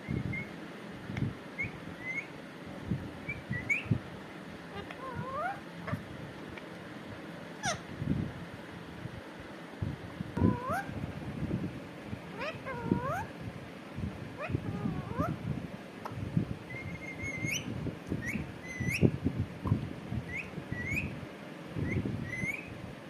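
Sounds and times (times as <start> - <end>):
parrot calling: 1.6 - 2.3, 3.3 - 3.9, 4.7 - 6.0, 7.6 - 7.9, 10.4 - 10.9, 12.3 - 13.3, 14.4 - 15.4, 16.7 - 19.0, 20.3 - 21.1, 21.8 - 22.7.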